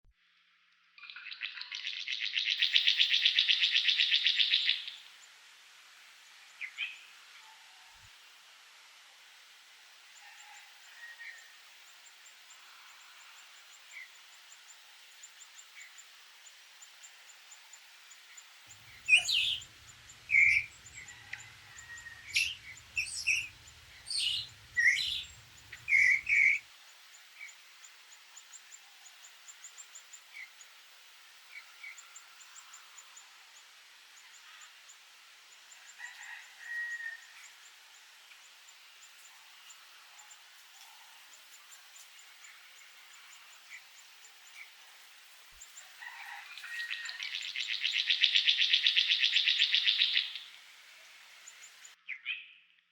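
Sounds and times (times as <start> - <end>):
faint chirps of other birds: 0.8 - 5.4, 9.2 - 52.9
bird chirping loudly: 19.0 - 19.7, 20.3 - 20.8, 21.8 - 26.6, 46.8 - 50.5.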